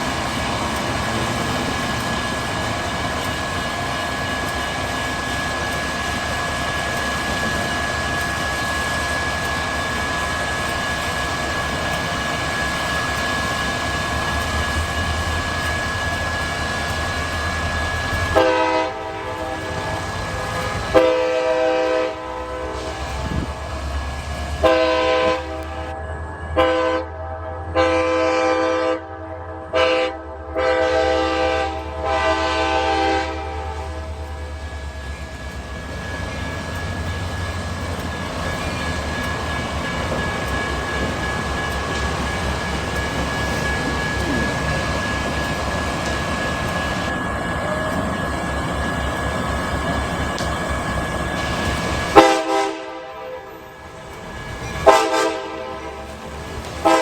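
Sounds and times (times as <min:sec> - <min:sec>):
train wheels rumbling on rail: 0:00.0 - 0:57.0
locomotive horn blasts: 0:18.3 - 0:23.6, 0:24.5 - 0:34.5, 0:52.0 - 0:57.0.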